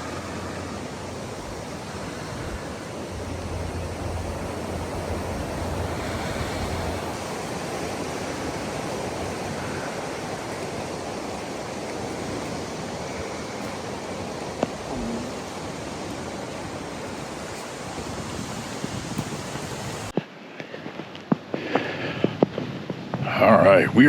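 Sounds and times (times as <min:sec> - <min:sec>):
low hum: 0:00.0 - 0:07.2
rushing wind: 0:00.0 - 0:24.0.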